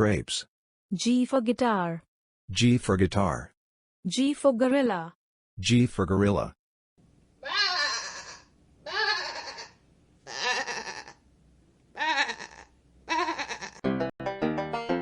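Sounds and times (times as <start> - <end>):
goat bleating: 7.4 - 11.2, 11.9 - 13.8.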